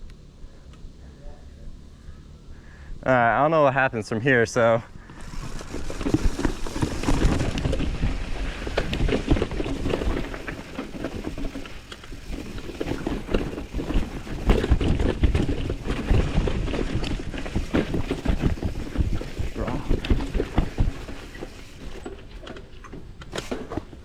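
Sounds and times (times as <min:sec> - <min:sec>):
tyres rumbling over rocks: 0:04.6 - 0:24.0
bike knocking and rattling: 0:04.9 - 0:24.0.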